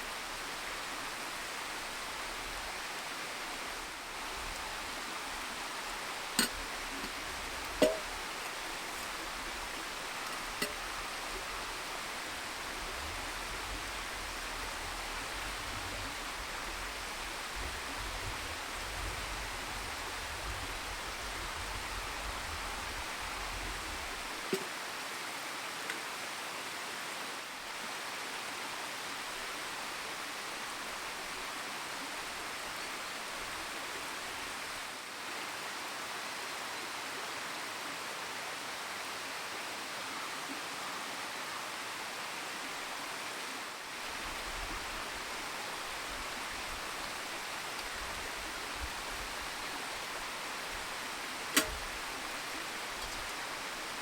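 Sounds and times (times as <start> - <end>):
faint single clicks: 51.5 - 51.9.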